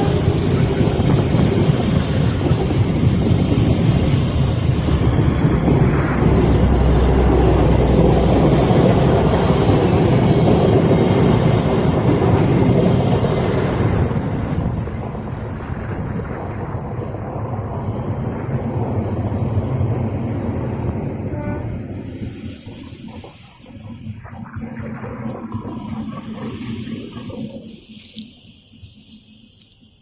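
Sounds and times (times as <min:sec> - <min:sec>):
low engine hum: 0:00.0 - 0:22.0
train rumbling: 0:00.0 - 0:27.9.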